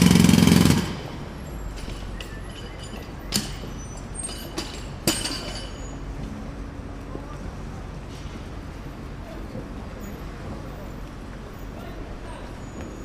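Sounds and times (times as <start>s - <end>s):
jackhammer hammering: 0.0s - 1.2s.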